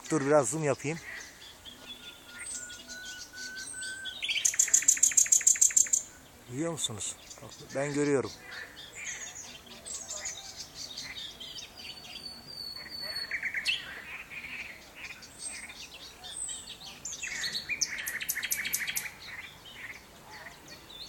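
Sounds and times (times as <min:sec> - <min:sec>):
nightingale singing: 0:00.0 - 0:21.0
fast rattling bird trill: 0:04.2 - 0:06.1, 0:17.8 - 0:19.2.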